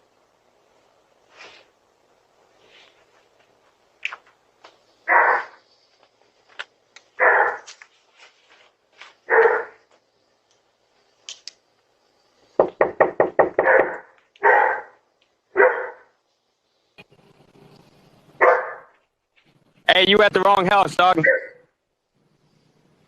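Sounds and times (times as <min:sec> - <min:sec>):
dog barking: 0:05.1 - 0:05.6, 0:07.2 - 0:07.7, 0:09.3 - 0:09.8, 0:13.6 - 0:16.1, 0:18.4 - 0:19.0, 0:21.2 - 0:21.6.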